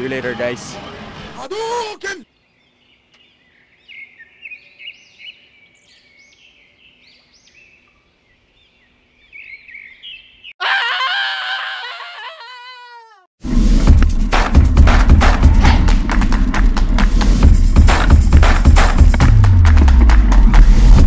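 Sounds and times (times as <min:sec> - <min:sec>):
small birds chirping: 0:02.2 - 0:10.6.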